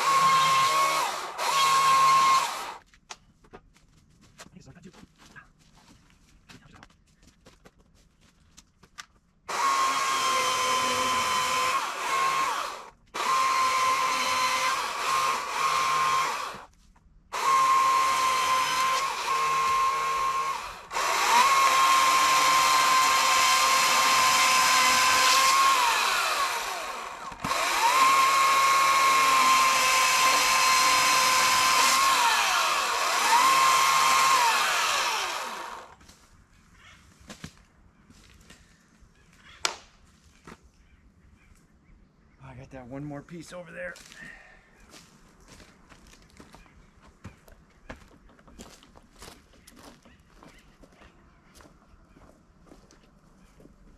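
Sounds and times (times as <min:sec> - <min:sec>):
electric chainsaw cutting wood: 0:00.0 - 0:02.8, 0:09.5 - 0:16.7, 0:17.3 - 0:36.0.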